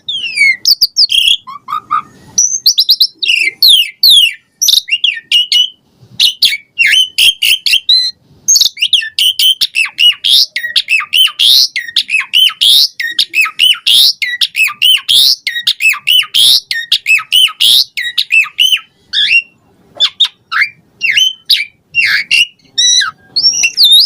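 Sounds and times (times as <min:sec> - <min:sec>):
starling singing: 0:00.0 - 0:24.0.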